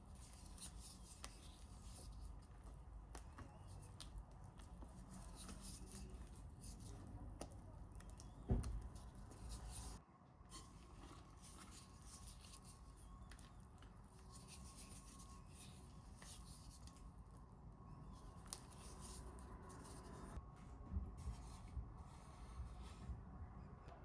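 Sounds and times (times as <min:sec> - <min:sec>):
faint light scratching: 0:08.2 - 0:20.4.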